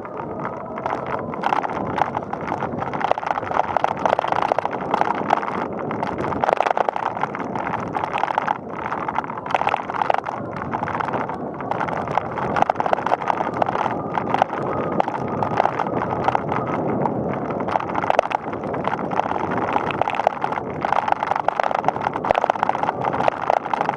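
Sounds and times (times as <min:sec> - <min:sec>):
bicycle road noise: 0:00.0 - 0:23.9
bike rattling and clicking: 0:00.0 - 0:23.9.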